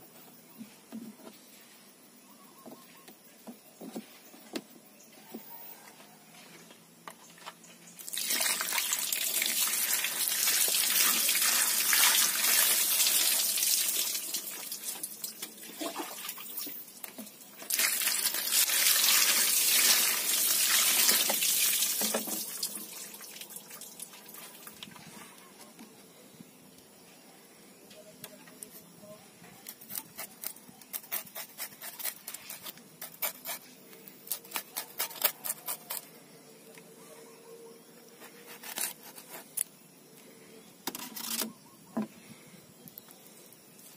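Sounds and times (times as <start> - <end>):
water running from tap: 8.1 - 15.4, 17.7 - 24.1.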